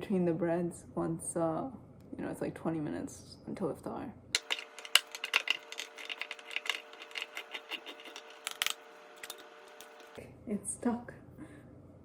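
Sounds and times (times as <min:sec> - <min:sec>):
faint steady hum: 0:00.0 - 0:12.0
metal utensils clicking and scraping: 0:04.4 - 0:10.2.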